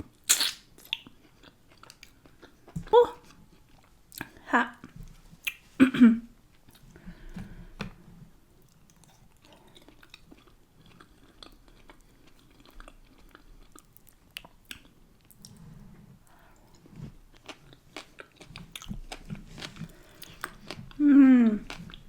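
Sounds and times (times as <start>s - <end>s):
person chewing and biting: 0.1s - 2.8s, 8.6s - 15.5s, 17.3s - 21.0s, 21.6s - 22.0s.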